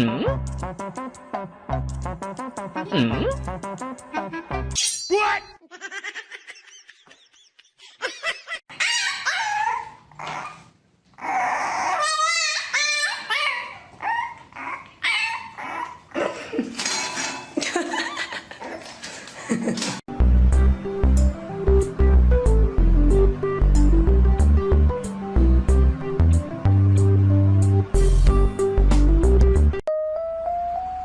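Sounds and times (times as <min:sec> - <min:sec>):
pet whining and yelping: 0:08.7 - 0:16.2.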